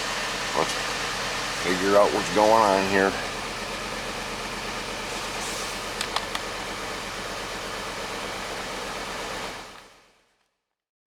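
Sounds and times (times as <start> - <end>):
engine idling with misfire: 0.0 - 10.4
light clicks: 6.0 - 6.5.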